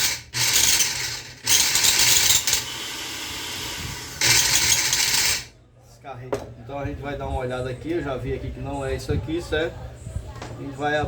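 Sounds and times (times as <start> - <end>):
food processor motor grinding: 0.0 - 5.5.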